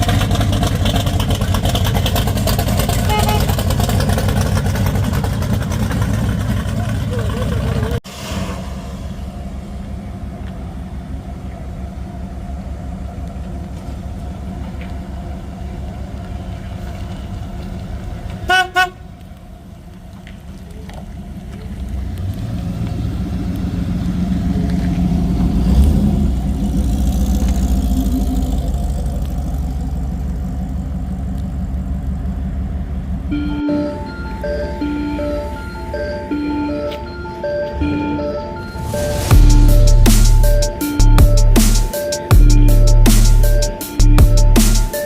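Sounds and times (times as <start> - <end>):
car engine pulling through: 0.0 - 45.0
car engine rumbling: 0.0 - 45.0
car horn toots: 2.8 - 4.0, 18.5 - 19.1, 33.3 - 37.1.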